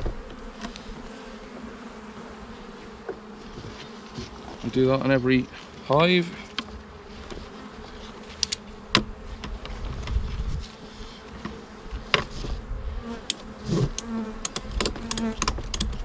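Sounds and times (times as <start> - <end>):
honeybees buzzing: 0.0 - 16.0
wooden hive parts knocking: 13.2 - 16.0.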